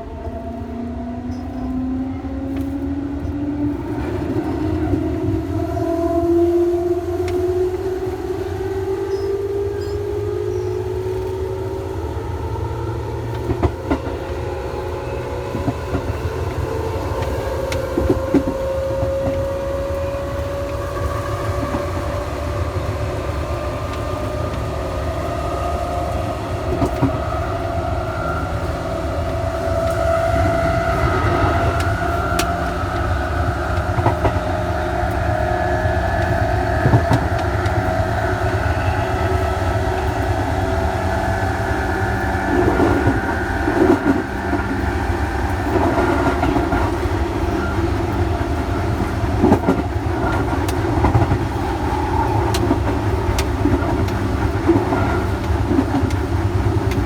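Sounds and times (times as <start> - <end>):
train motors whining: 0.0 - 57.0
wheels rumbling on rail: 0.0 - 57.0
track clicks: 20.3 - 57.0.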